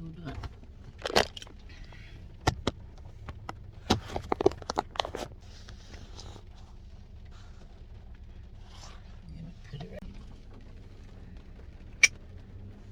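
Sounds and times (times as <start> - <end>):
faint rustling: 0.1 - 12.1
cup crinkling: 0.2 - 6.8.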